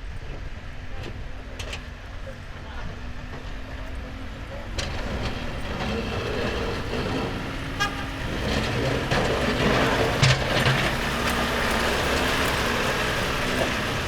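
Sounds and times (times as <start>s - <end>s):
vehicle engines running: 0.0s - 14.0s
car horn toot: 7.7s - 8.6s.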